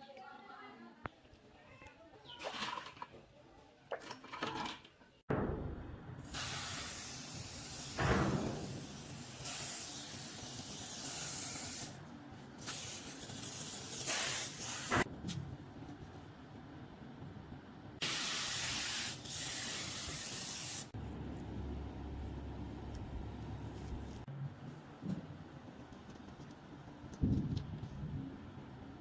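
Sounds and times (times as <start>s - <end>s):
hissing spray: 6.3s - 12.0s, 12.6s - 15.1s, 18.0s - 21.0s.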